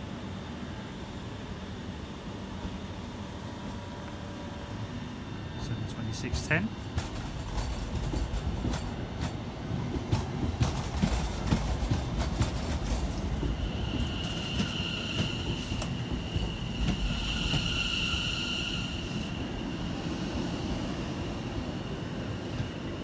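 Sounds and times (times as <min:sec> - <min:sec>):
train low rumble: 0:00.0 - 0:23.0
train wheels knocking on rail joints: 0:06.4 - 0:17.8.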